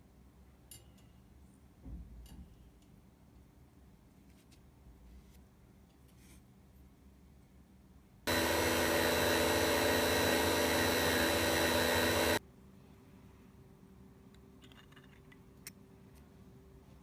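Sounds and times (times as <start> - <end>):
electric motor whirring: 8.3 - 12.4.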